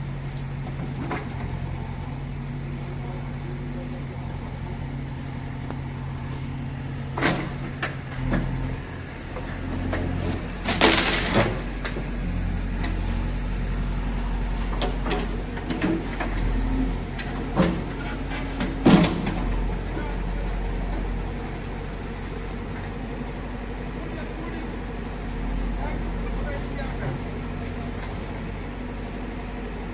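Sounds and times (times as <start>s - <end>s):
diesel engine running: 0.0s - 29.9s
machine clunks and knocks: 7.0s - 8.6s, 9.3s - 12.1s, 17.1s - 19.7s.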